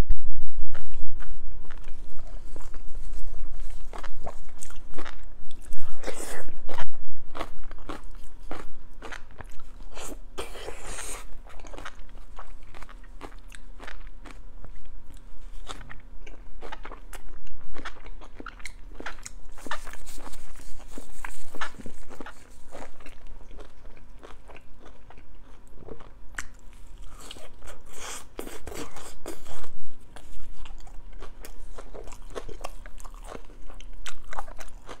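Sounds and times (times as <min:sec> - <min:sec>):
mouth chewing with smacking clicks: 0:21.5 - 0:35.0.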